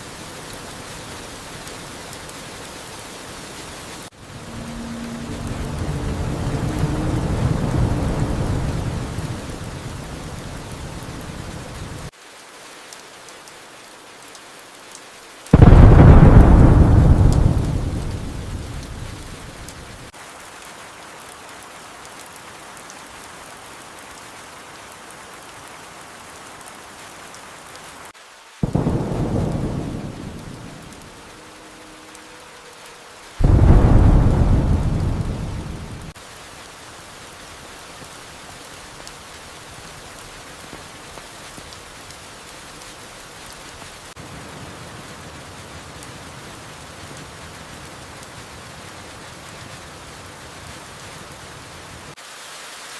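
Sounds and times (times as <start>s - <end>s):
steady rain: 0.0s - 52.9s
thunder rumble and claps: 4.2s - 12.1s, 15.5s - 20.1s, 28.6s - 31.4s, 33.4s - 36.2s.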